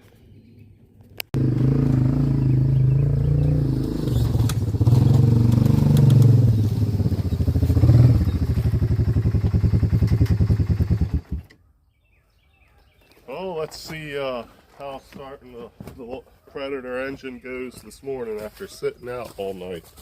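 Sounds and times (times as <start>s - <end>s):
engine running hard: 1.4s - 11.4s.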